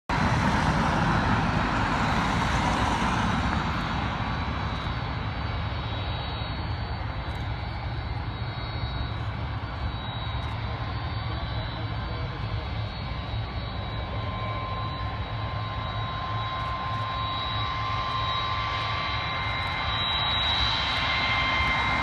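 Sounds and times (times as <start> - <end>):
airliner jet engine rumble: 0.1 - 22.0.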